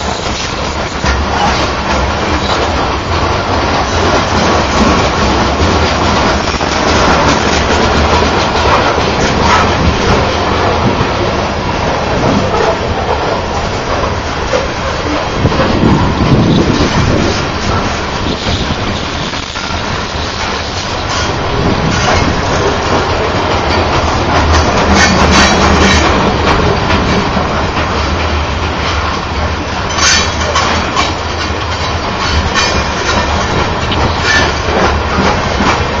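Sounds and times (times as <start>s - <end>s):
train wheels rumbling on rails: 0.0s - 36.0s
wheels clicking and clacking: 0.0s - 36.0s.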